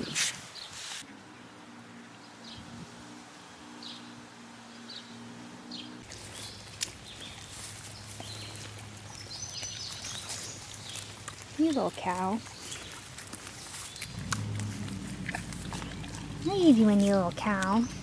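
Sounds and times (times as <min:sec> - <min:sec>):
birds chirping: 0:04.9 - 0:18.0
low steady hum: 0:06.2 - 0:18.0.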